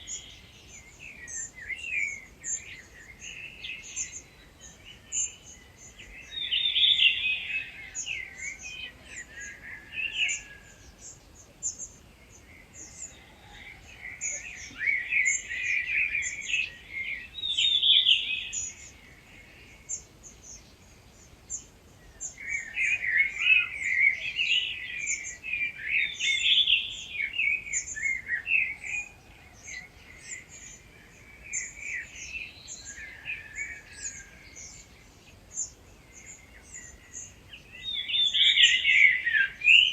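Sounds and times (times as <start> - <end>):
songbird singing close by: 0.0 - 39.9.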